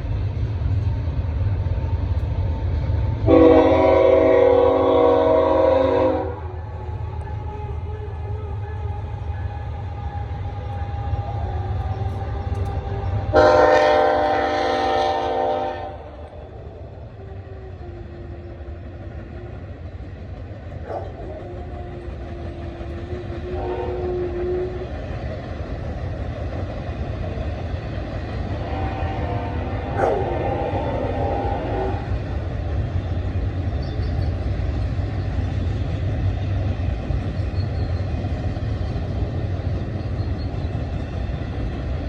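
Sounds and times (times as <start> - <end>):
train rumbling by: 0.0 - 42.0
locomotive horn blast: 3.2 - 6.6, 13.3 - 16.4, 23.4 - 24.9, 28.6 - 32.2.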